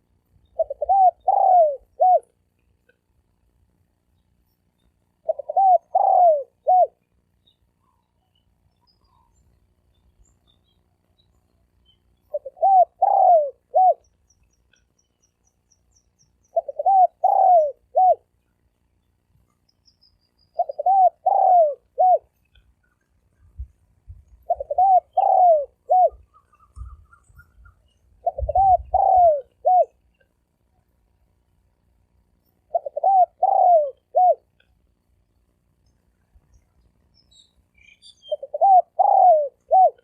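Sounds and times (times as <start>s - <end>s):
dove cooing: 0.5s - 2.4s, 5.2s - 7.0s, 12.3s - 14.1s, 16.5s - 18.3s, 20.5s - 22.3s, 24.3s - 30.0s, 32.6s - 34.6s, 38.2s - 40.0s
faint low rumbling: 21.9s - 33.0s.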